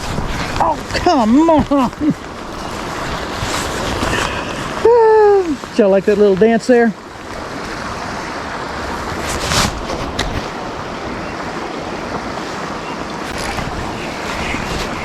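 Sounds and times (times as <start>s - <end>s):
falling rain: 0.0s - 15.0s
stream water rushing: 0.0s - 15.0s.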